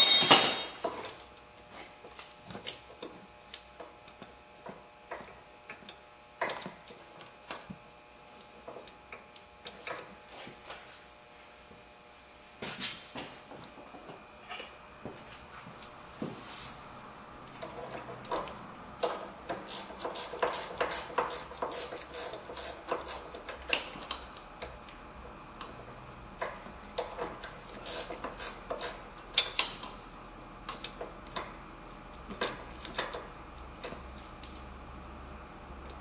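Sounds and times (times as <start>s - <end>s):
ratchet wrench clicking: 19.0s - 24.2s, 27.1s - 29.8s.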